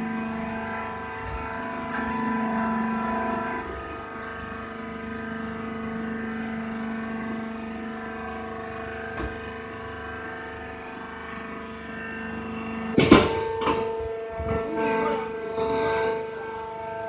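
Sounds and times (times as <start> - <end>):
baler motor and pump humming: 0.0 - 17.0.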